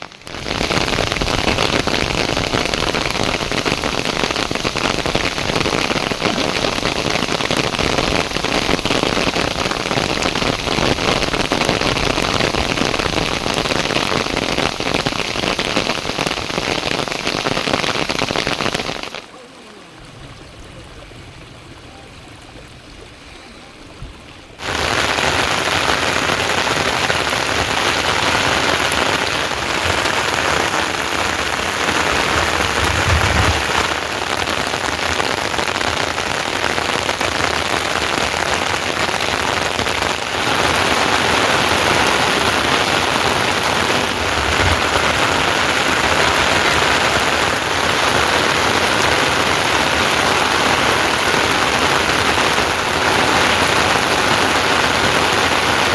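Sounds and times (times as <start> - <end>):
heavy rain falling: 0.0 - 55.9
brief low rumbles: 32.3 - 34.2.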